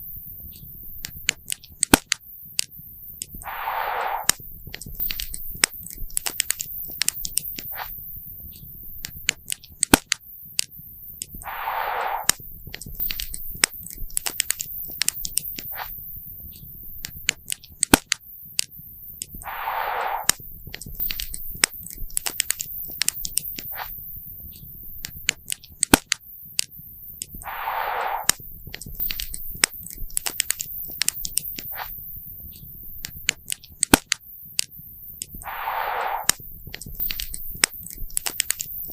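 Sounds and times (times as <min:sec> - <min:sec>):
rush of noise: 0:03.4 - 0:04.4, 0:11.4 - 0:12.4, 0:19.4 - 0:20.4, 0:27.4 - 0:28.4, 0:35.4 - 0:36.4.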